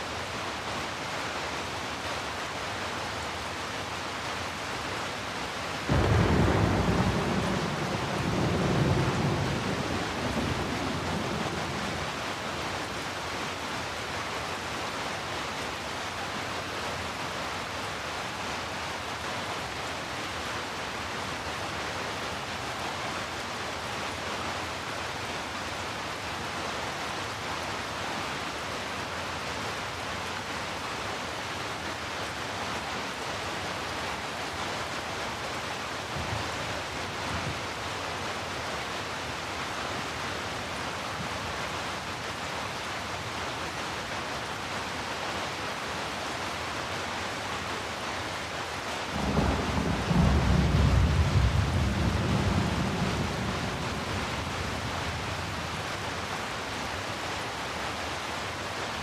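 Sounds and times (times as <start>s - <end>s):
steady rain: 0.0s - 59.0s
thunder rumbling: 5.9s - 12.2s, 49.1s - 55.7s.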